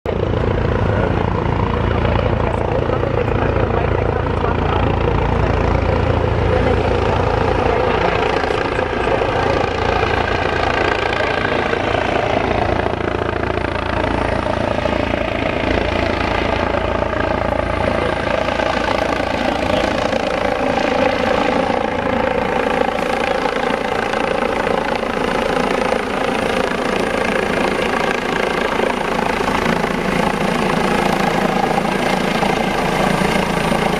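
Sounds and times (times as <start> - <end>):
helicopter rotor low beat: 0.0 - 33.9
helicopter turbine whine: 0.1 - 33.9.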